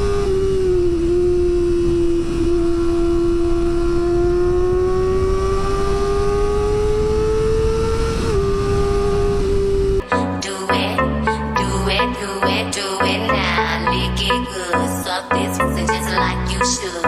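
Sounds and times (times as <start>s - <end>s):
motorcycle engine revving high: 0.0s - 10.0s.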